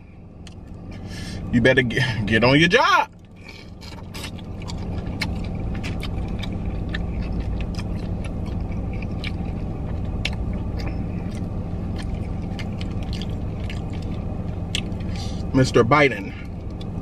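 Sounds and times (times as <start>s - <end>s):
low car hum: 0.0s - 17.0s
person chewing with mouth smacks: 3.2s - 15.5s.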